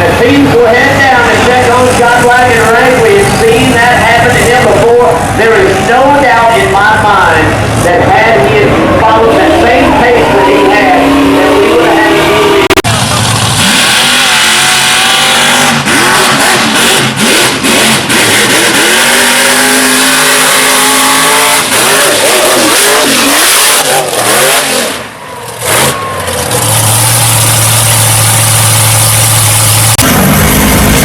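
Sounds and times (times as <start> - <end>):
low engine drone: 0.0 - 31.0
mud truck engine revving hard: 7.2 - 31.0.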